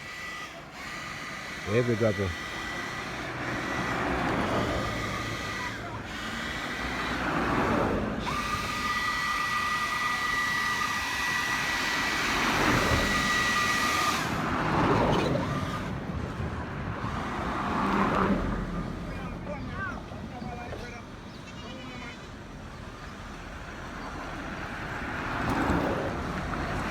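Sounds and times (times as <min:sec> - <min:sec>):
power blower air blast: 0:00.0 - 0:16.0.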